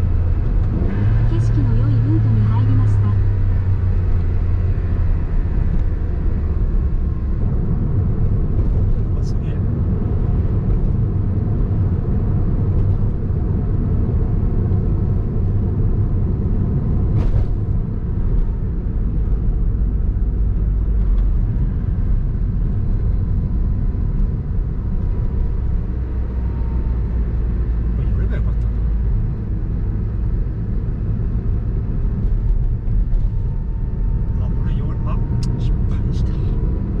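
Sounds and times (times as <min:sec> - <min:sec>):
car engine low rumble: 0:00.0 - 0:37.0.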